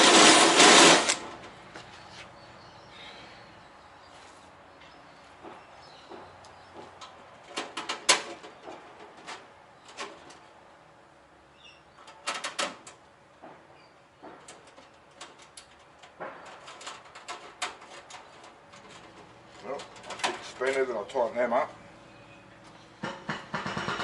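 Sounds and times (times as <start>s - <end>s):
clicks and knocks of tools: 14.2s - 20.8s.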